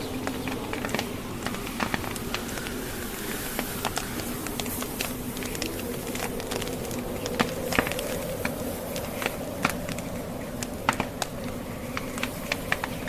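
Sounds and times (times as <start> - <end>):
low rush of wind: 0.0 - 13.0
wood fire crackling: 0.0 - 13.0.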